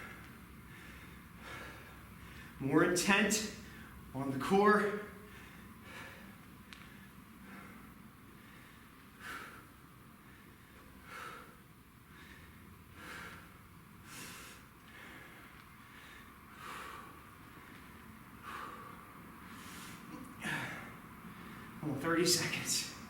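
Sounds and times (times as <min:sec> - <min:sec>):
man breathing out sharply: 0:18.4 - 0:21.8.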